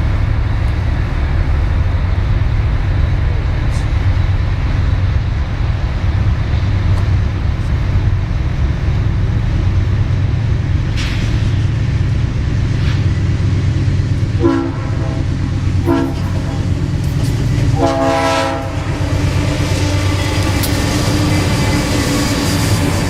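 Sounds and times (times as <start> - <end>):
diesel locomotive rumbling: 0.0 - 23.0
train air horn blast: 14.4 - 16.8, 17.7 - 19.1.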